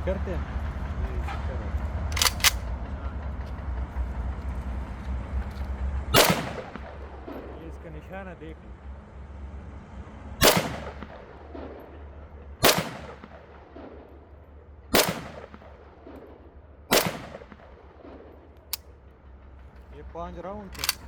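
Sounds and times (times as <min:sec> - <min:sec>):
rifle shots with echo: 0:02.1 - 0:02.7, 0:06.2 - 0:07.6, 0:10.4 - 0:14.3, 0:14.9 - 0:18.8, 0:20.8 - 0:21.0
sharp click: 0:02.1 - 0:02.7, 0:20.8 - 0:21.0.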